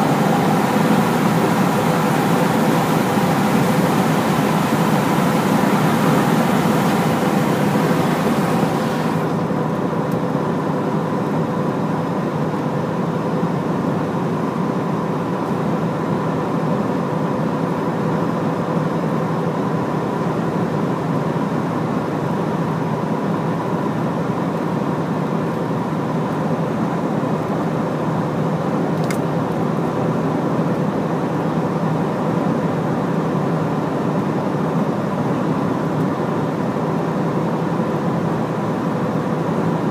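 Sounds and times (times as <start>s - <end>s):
truck engine droning: 0.0s - 9.6s.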